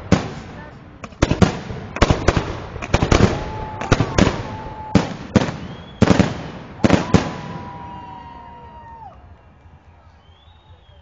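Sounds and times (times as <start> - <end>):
faint firework whistling: 3.1 - 11.0.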